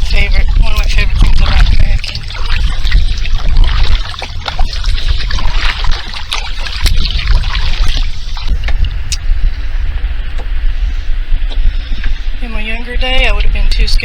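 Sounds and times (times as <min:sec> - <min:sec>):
paddle strokes in water: 0:00.0 - 0:09.0
steady low rumble: 0:00.0 - 0:14.0
water dripping off paddle: 0:00.7 - 0:08.8.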